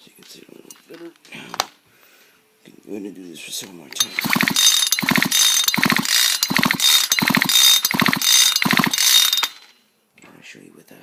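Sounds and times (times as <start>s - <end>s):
chainsaw recoil starter pulls: 4.0s - 9.7s.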